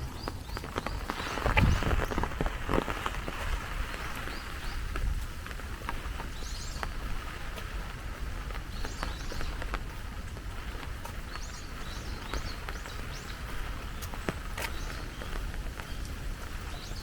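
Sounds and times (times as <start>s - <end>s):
raindrops ticking: 0.0s - 17.0s
steady rain: 0.0s - 17.0s
small bird chirping: 6.0s - 17.0s.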